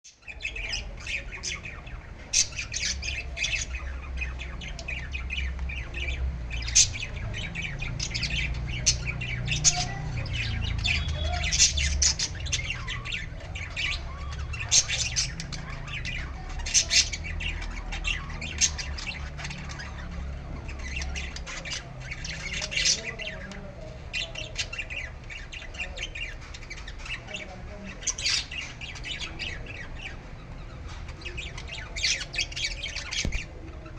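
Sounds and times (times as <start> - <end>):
baby bird squawking: 8.0 - 23.5.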